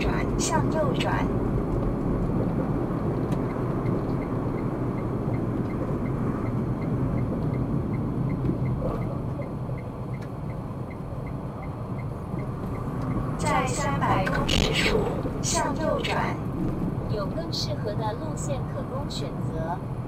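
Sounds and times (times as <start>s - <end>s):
car engine and tyres rumbling: 0.0s - 20.0s
turn-signal indicator ticking: 0.2s - 17.6s.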